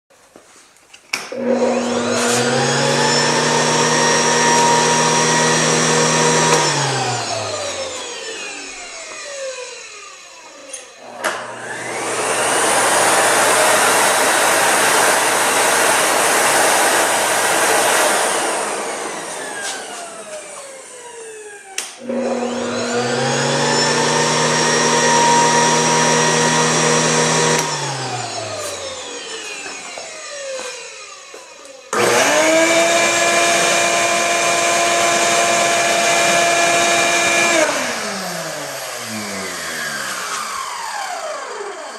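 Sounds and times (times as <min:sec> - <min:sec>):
vacuum motor whining: 0:01.3 - 0:41.9.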